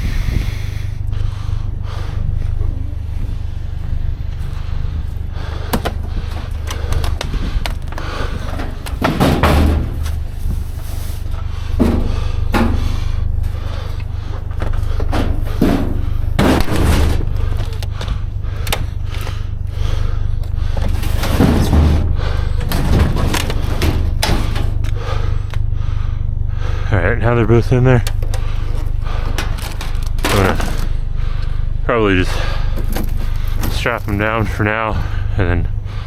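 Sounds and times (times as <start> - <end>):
steady low hum: 0.0 - 36.0
hollow metal clunks and bangs: 5.6 - 10.7, 11.5 - 13.2, 14.4 - 19.2, 20.6 - 25.0.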